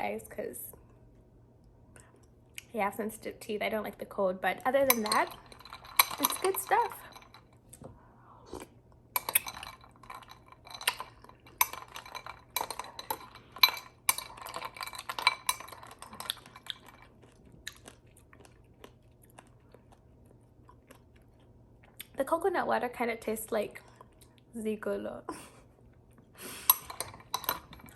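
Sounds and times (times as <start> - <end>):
spoon clinking in a bowl: 4.8 - 7.5, 9.2 - 17.0, 26.7 - 27.9
chewing: 8.5 - 22.2, 23.8 - 24.5.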